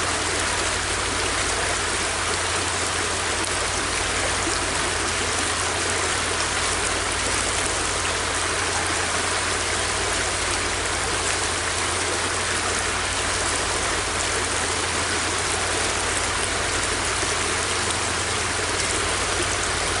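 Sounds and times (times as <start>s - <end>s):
river water rushing over rocks: 0.0s - 20.0s.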